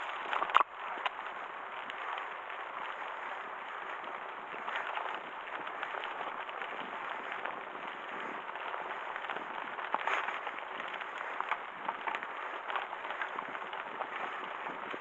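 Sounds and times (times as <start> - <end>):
sharp crack: 0.0 - 2.3
bicycle tyres crunching over twigs: 0.0 - 15.0
small crackles and rattles: 0.0 - 15.0.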